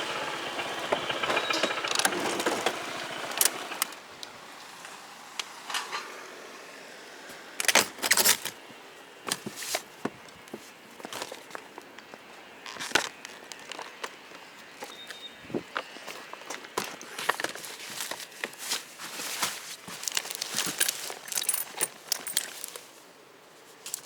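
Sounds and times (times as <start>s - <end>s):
small objects clattering: 11.0s - 23.0s.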